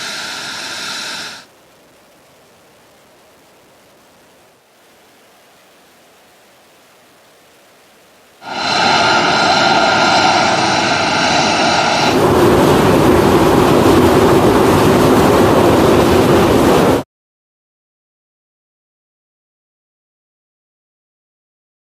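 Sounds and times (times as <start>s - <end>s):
jet engine roaring with whine: 0.0s - 1.6s, 8.4s - 17.0s.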